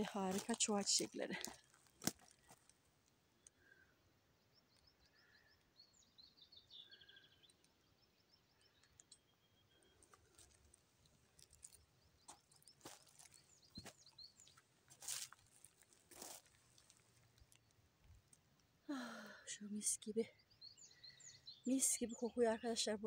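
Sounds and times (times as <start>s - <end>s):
faint footsteps: 0.0s - 2.8s, 10.0s - 17.6s
small bird chirping and trilling: 4.5s - 10.1s, 11.4s - 15.5s, 19.8s - 23.0s.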